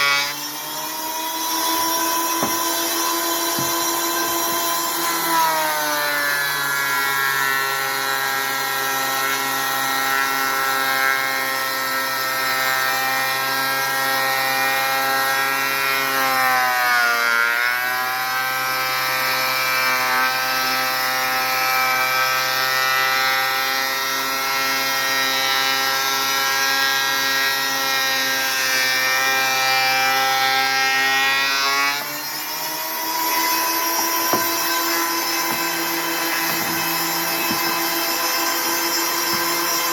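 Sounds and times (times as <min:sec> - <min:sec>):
thickness planer motor under load: 0:00.0 - 0:09.5, 0:28.5 - 0:39.9.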